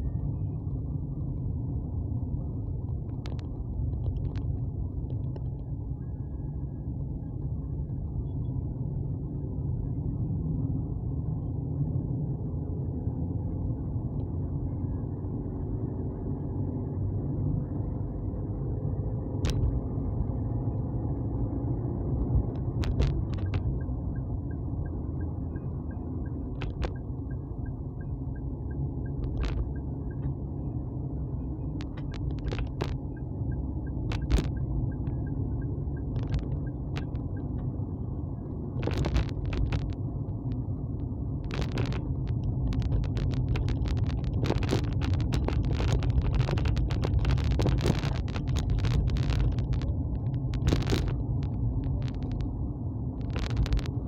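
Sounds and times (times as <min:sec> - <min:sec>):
vehicle rumble: 0:00.0 - 0:54.0
wind and road noise: 0:00.0 - 0:54.0
sharp clicks and crackles: 0:02.9 - 0:05.7, 0:19.4 - 0:19.8, 0:22.2 - 0:23.9, 0:26.2 - 0:27.1, 0:29.0 - 0:30.4, 0:31.6 - 0:37.6, 0:38.7 - 0:54.0.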